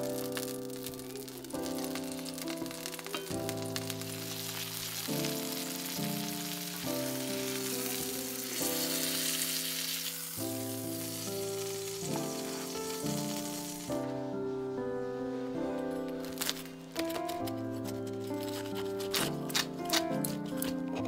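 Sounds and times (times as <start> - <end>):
food sizzling in a frying pan: 0.0 - 14.1.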